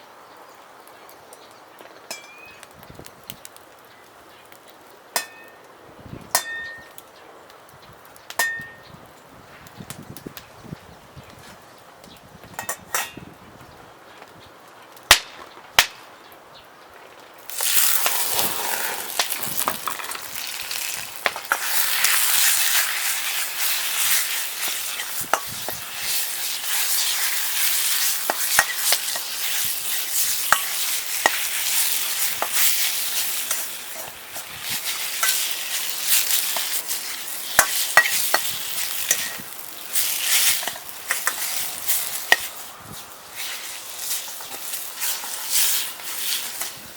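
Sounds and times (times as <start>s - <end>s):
food sizzling in hot oil: 17.4s - 46.9s.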